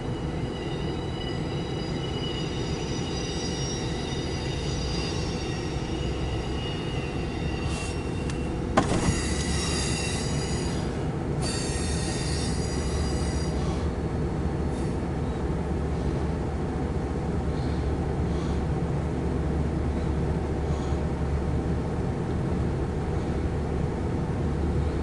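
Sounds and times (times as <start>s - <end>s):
high-pitched wheel squeal: 0.0s - 13.9s
freight train rumbling: 0.0s - 25.0s.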